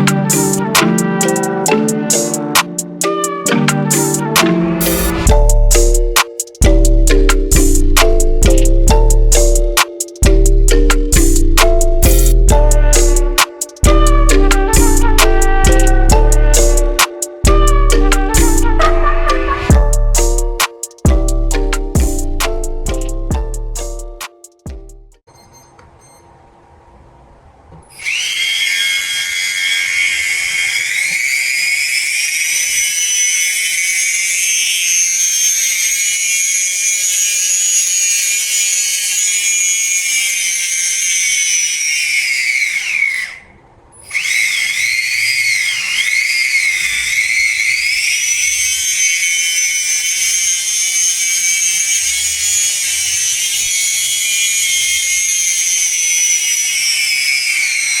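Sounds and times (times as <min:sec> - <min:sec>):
small electric motor whining: 0:27.9 - 0:58.0.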